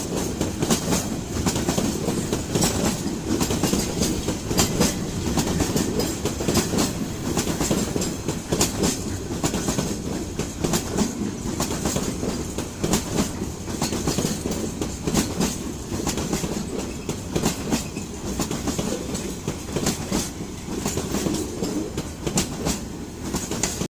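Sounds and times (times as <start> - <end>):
freight train wheels clattering: 0.0 - 23.9.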